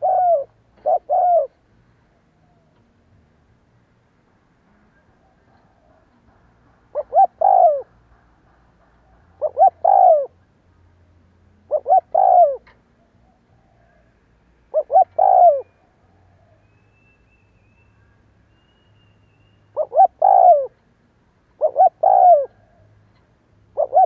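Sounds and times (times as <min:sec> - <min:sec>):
dove cooing: 0:00.0 - 0:01.6, 0:05.3 - 0:08.0, 0:09.1 - 0:10.4, 0:11.7 - 0:14.1, 0:14.7 - 0:16.6, 0:19.8 - 0:20.8, 0:21.6 - 0:23.0, 0:23.7 - 0:24.0.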